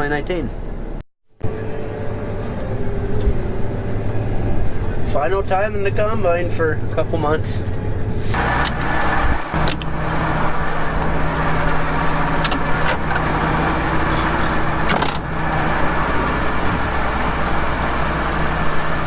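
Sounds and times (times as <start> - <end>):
combine harvester engine running: 0.6 - 19.0
brief clicks: 9.6 - 9.9.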